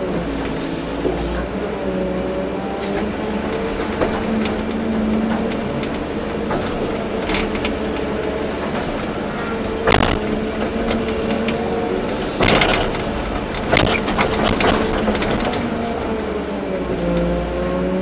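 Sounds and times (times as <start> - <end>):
excavator diesel engine under load: 0.0 - 18.0
knocks and rattles: 2.9 - 17.3.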